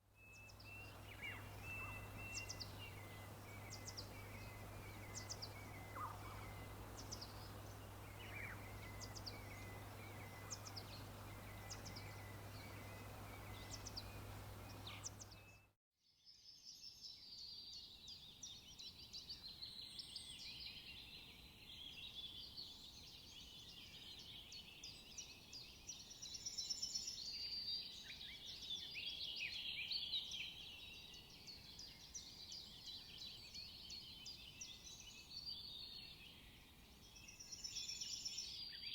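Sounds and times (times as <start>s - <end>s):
chorus of birds singing: 0.2s - 15.7s
low steady hum: 0.4s - 15.4s
high falling bird chirps: 0.5s - 15.4s.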